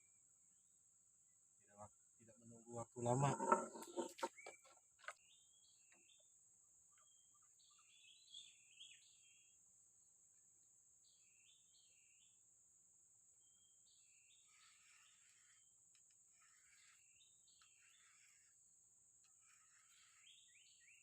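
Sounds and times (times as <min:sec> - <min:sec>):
faint bird calls: 0:14.3 - 0:18.6, 0:19.2 - 0:21.0.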